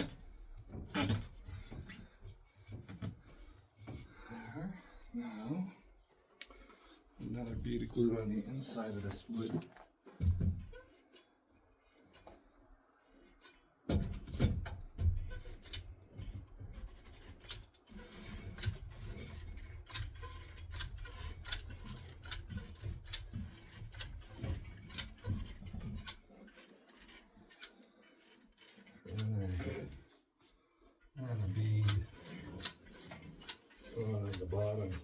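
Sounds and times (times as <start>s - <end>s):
rubbing handling noise: 0.0s - 4.7s, 7.1s - 10.7s.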